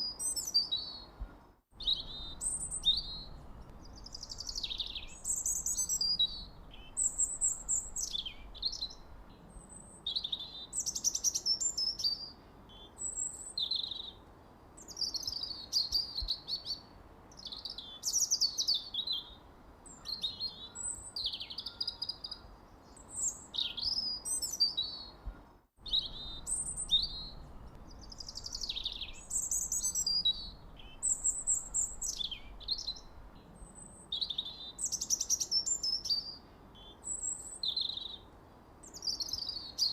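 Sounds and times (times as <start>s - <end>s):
birds chirping and singing: 1.8s - 9.1s, 25.9s - 38.2s.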